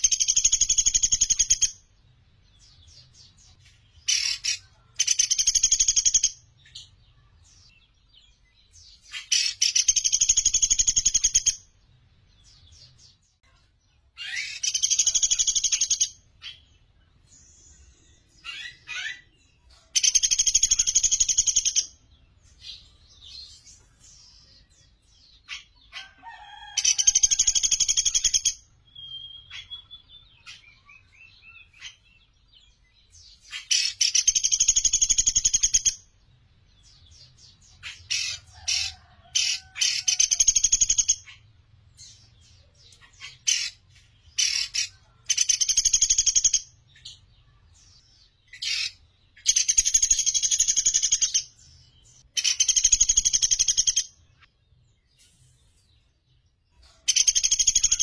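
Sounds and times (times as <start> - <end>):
bird chattering trills: 0.0 - 1.8, 2.9 - 6.9, 8.8 - 11.7, 14.2 - 16.7, 18.3 - 22.0, 33.1 - 36.0, 37.2 - 47.2, 48.2 - 51.6, 52.2 - 54.4, 56.8 - 58.0.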